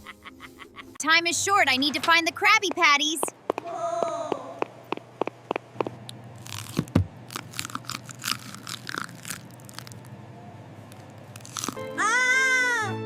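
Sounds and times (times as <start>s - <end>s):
cartoon food crunching: 3.5s - 10.1s, 10.9s - 12.0s.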